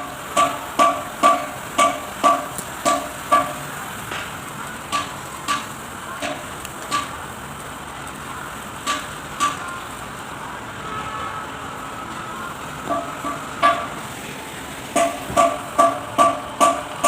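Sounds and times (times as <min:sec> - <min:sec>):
steady background hiss: 0:00.0 - 0:17.0
sharp metallic taps ringing: 0:00.4 - 0:03.6, 0:15.0 - 0:17.0.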